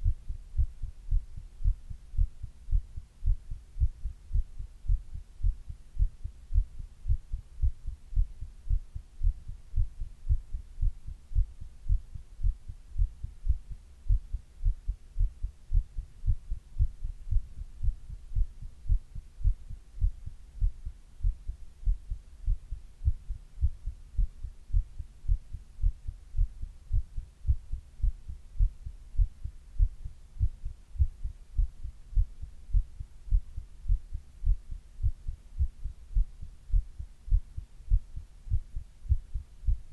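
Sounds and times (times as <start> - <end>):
heartbeat thuds: 0.0 - 39.9.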